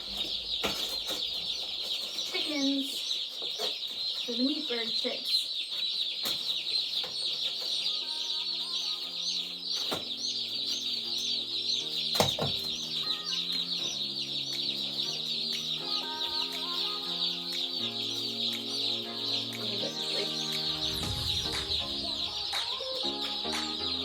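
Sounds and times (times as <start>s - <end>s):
chicks peeping: 0.0s - 24.0s
soft background music: 6.2s - 24.0s.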